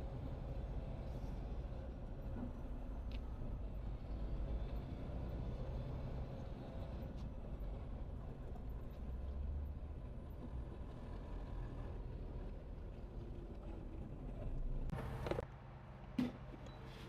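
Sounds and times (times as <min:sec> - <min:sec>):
diesel truck engine rumble: 0:00.0 - 0:15.5
road noise: 0:00.0 - 0:17.0.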